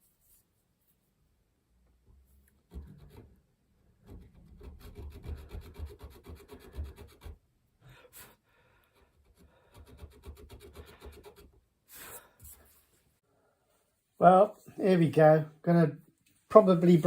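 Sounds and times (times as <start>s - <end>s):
file rasping on steel: 4.2s - 7.4s.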